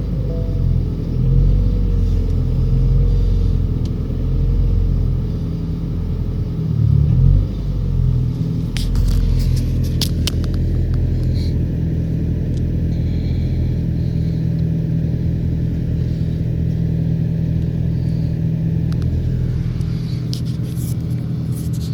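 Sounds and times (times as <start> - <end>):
car engine idling: 0.0 - 21.9.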